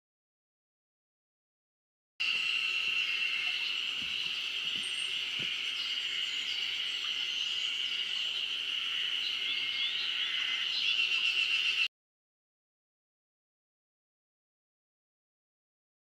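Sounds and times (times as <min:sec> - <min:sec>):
cicadas droning: 0:02.2 - 0:11.9.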